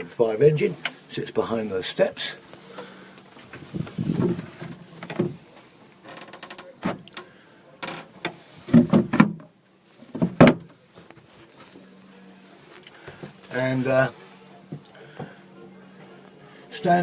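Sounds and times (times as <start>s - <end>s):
knocks and thumps of handling: 3.4s - 5.5s, 8.2s - 11.3s.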